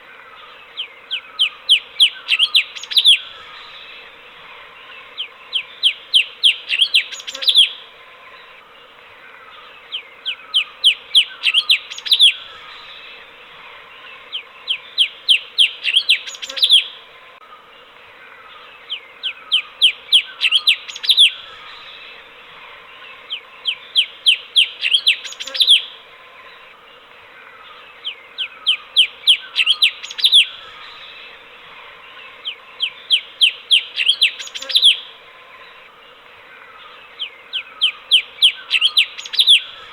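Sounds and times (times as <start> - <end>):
bulbul singing whistled notes: 0.8 - 3.7, 5.2 - 7.8, 10.3 - 13.0, 14.4 - 17.0, 18.9 - 22.1, 23.3 - 26.0, 28.1 - 31.2, 32.5 - 35.1, 37.5 - 39.9.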